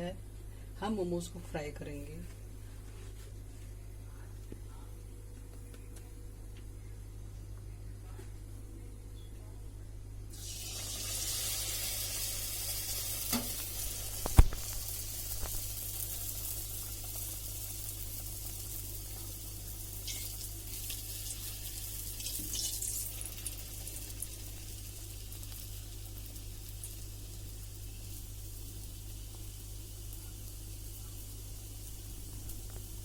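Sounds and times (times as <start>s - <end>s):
food sizzling in hot oil: 10.3s - 33.0s.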